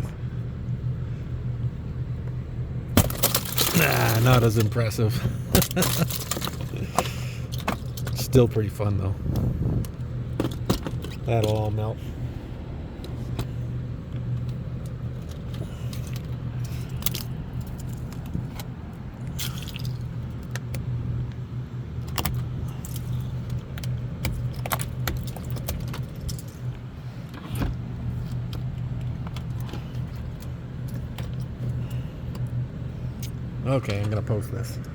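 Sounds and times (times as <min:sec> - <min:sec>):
car engine running: 0:00.0 - 0:34.9
broken ice clinking: 0:03.0 - 0:04.7, 0:05.6 - 0:06.8.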